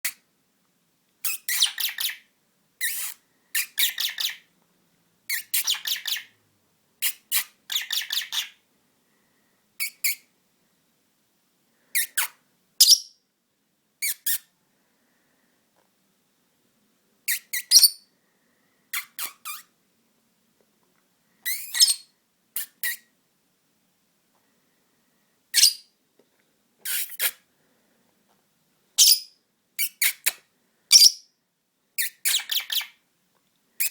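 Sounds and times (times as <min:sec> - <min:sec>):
lovebird squeaky chirps and squawks: 0:01.2 - 0:04.5, 0:05.3 - 0:06.3, 0:07.0 - 0:08.6, 0:09.8 - 0:10.3, 0:12.0 - 0:13.2, 0:14.0 - 0:14.5, 0:17.3 - 0:18.1, 0:18.9 - 0:19.7, 0:21.4 - 0:23.1, 0:25.5 - 0:25.9, 0:26.8 - 0:27.4, 0:29.0 - 0:31.3, 0:32.0 - 0:33.0.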